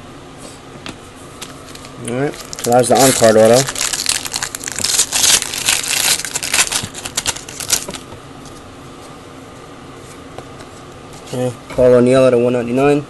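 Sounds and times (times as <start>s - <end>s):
cards and packaging crinkling: 1.4s - 8.0s.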